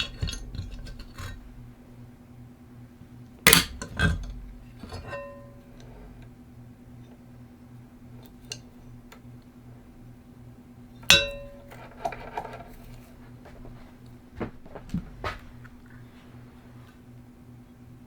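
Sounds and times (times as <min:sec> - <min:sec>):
metal tools handled on workbench: 0:00.0 - 0:01.6, 0:03.5 - 0:06.3, 0:11.1 - 0:15.9
steady low hum: 0:00.0 - 0:18.0
loud ringing metal clang: 0:05.0 - 0:06.1, 0:11.1 - 0:12.0
light metal clinks and knocks: 0:11.1 - 0:15.9.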